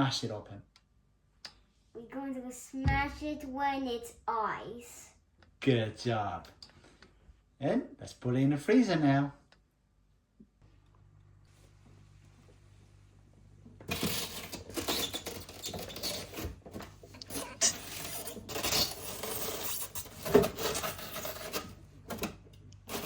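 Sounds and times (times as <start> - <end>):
things scraping and rubbing: 13.8 - 23.0.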